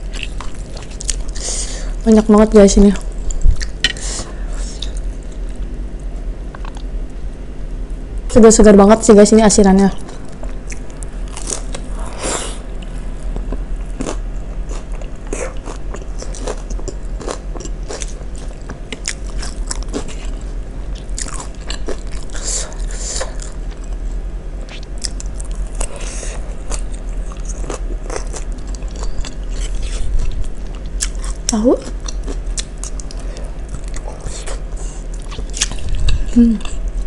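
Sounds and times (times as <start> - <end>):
biting and chewing crunchy food: 0.0 - 1.4, 12.7 - 37.0.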